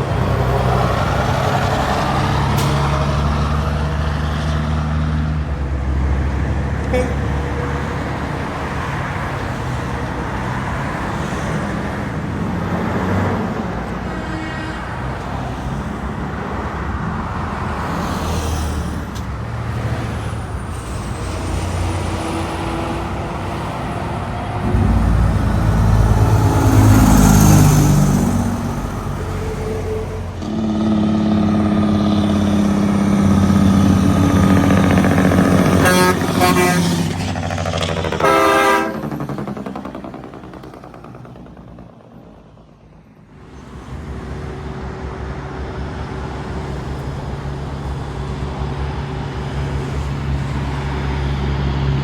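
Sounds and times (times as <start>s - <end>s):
highway traffic passing: 0.0s - 52.0s
truck horn: 6.8s - 8.0s, 14.0s - 15.3s, 24.6s - 40.1s.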